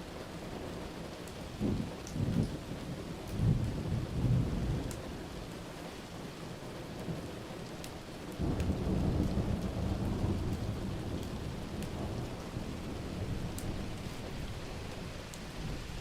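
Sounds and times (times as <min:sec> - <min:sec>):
steady rain: 0:00.0 - 0:16.0
thunder rumble: 0:08.4 - 0:16.0.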